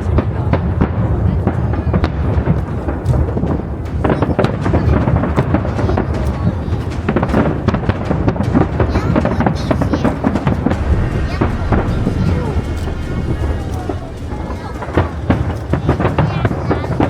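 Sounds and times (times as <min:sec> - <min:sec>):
fireworks booming and crackling: 0:00.0 - 0:17.0
continuous low rumble: 0:10.6 - 0:16.4.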